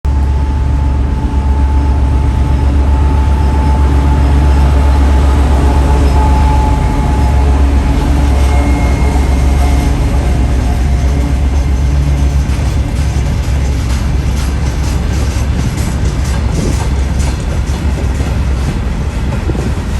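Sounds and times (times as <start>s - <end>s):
train rumbling: 0.1s - 19.9s
faint steady tones: 2.0s - 15.6s.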